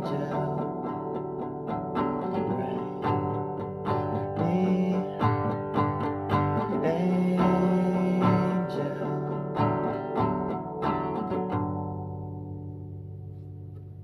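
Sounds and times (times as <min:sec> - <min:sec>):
acoustic guitar: 0:00.0 - 0:14.0.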